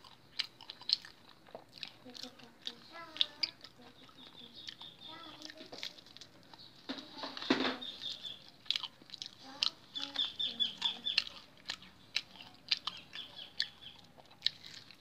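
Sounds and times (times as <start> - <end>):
person chewing crunchy fried food: 0.0 - 6.9, 7.8 - 15.0.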